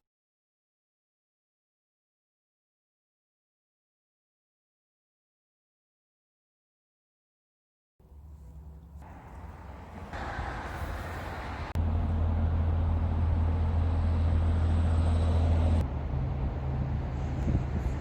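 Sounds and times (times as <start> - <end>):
vehicle engine and road drone: 8.0 - 18.0.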